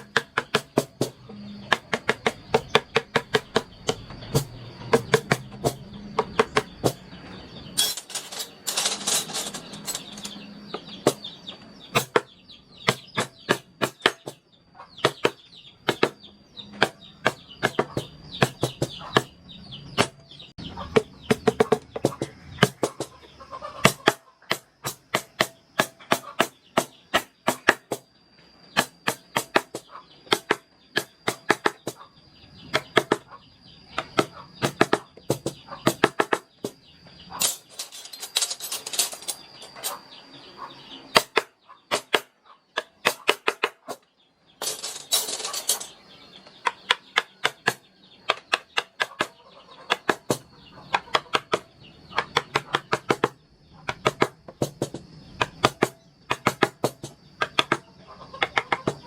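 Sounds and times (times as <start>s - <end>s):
mallet tapping chisel into wood: 1.7s - 4.1s.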